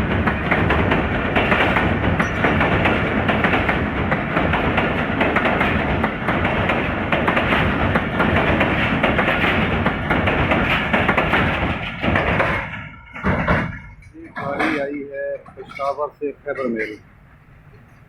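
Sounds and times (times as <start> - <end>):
passenger train running past: 0.0 - 14.4
wheels clattering over rail joints: 0.0 - 16.2.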